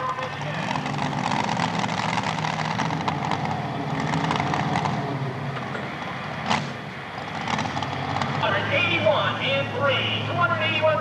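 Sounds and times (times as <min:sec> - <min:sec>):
truck engine running hard: 0:00.0 - 0:11.0
sharp crack: 0:06.4 - 0:06.8.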